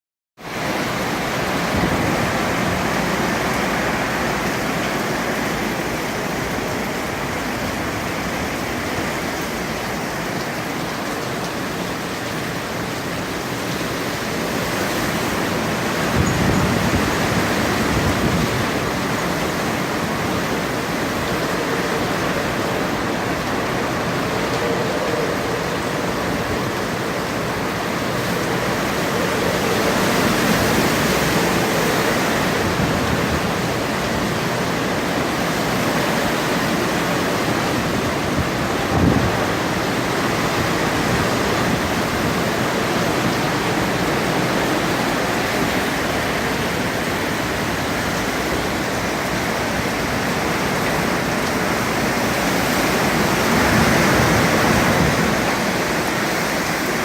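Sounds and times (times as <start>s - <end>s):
strong wind rushing: 14.6s - 48.8s.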